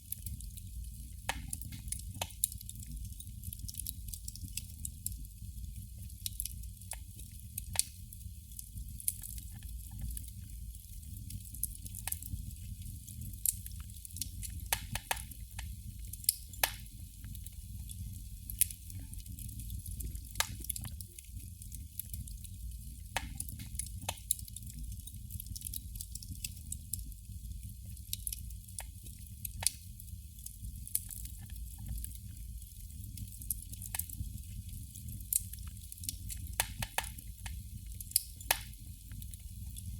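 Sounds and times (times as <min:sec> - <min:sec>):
candle flame crackling: 0:00.0 - 0:39.9
low steady rumble: 0:04.2 - 0:39.9.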